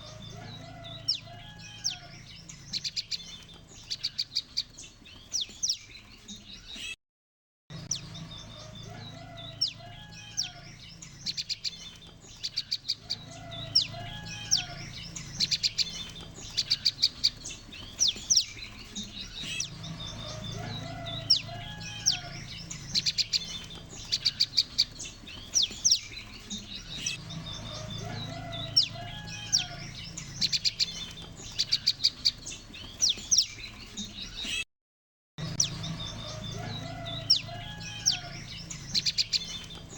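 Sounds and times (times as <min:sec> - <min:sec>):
birds chipping: 0:00.0 - 0:07.0, 0:07.7 - 0:34.6, 0:35.4 - 0:39.9
bird warbling: 0:07.9 - 0:33.6
steady low hum: 0:13.0 - 0:25.2.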